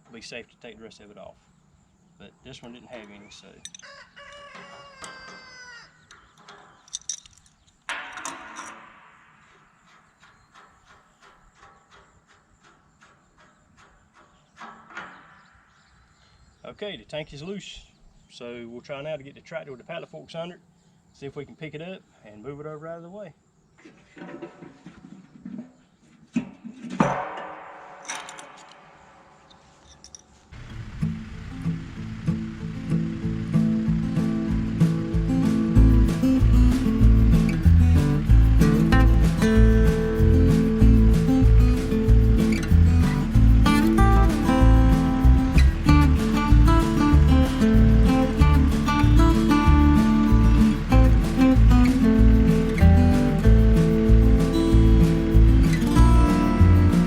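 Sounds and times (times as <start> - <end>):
small knocks: 3.0 - 15.7
rooster crowing: 3.7 - 6.2
loud ringing bang: 7.9 - 10.1, 27.0 - 29.7.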